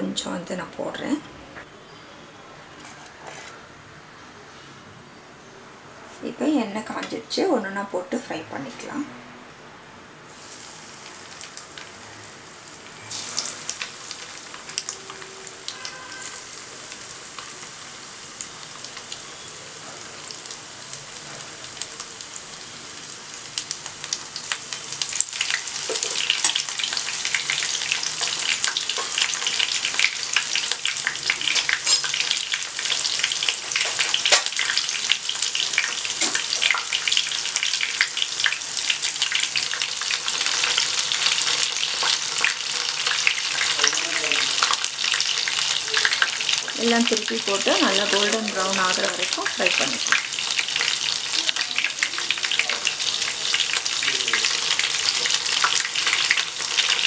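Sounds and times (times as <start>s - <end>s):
food sizzling in hot oil: 10.3s - 57.0s.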